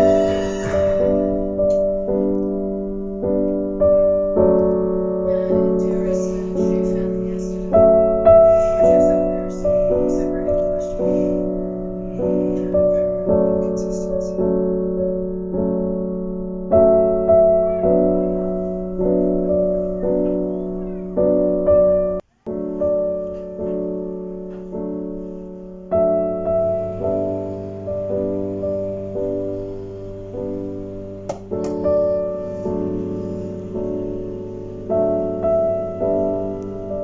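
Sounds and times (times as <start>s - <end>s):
slow piano melody: 0.0s - 37.0s.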